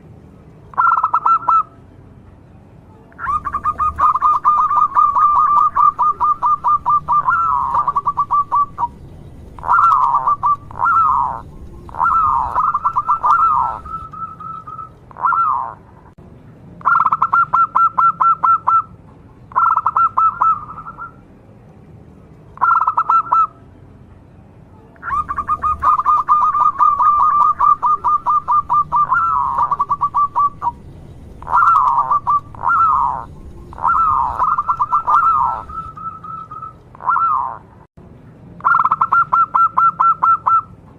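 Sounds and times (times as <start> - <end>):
dove cooing: 0.8 - 1.7, 3.2 - 9.0, 9.6 - 15.8, 19.6 - 21.2, 22.6 - 23.5, 25.0 - 30.8, 31.4 - 37.6.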